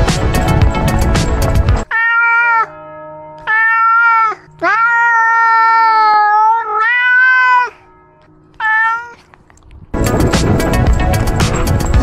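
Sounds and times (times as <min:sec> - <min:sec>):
cat meowing loudly: 0:01.8 - 0:02.8, 0:03.4 - 0:07.9, 0:08.6 - 0:09.3.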